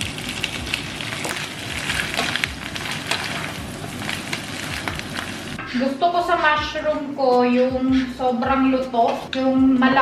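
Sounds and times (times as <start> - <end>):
mushrooms sizzling in a pan: 0.0 - 5.6
utensil stirring in a pan: 0.0 - 5.6.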